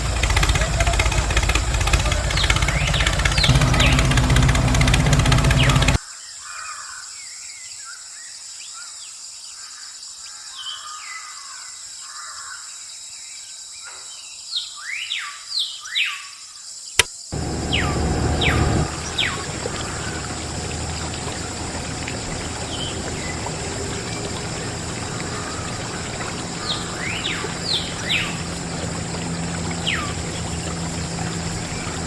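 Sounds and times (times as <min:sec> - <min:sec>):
birds chirping: 0:00.0 - 0:06.0, 0:17.3 - 0:32.0
small motor humming: 0:00.0 - 0:06.0, 0:17.4 - 0:32.0
outdoor background noise: 0:00.0 - 0:06.2, 0:17.0 - 0:32.0.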